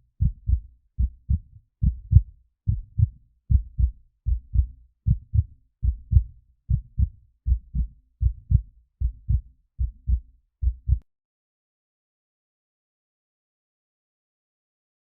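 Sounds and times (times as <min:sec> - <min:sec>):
heartbeat double thumps: 0:00.2 - 0:11.0.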